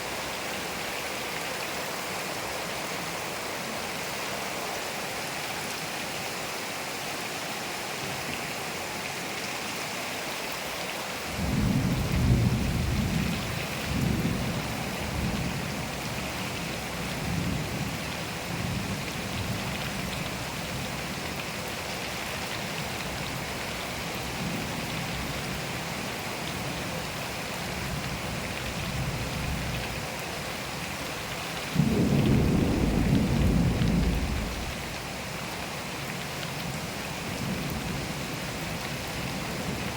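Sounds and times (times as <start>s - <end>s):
steady rain falling: 0.0s - 39.9s
thunder rumbling: 31.8s - 34.9s.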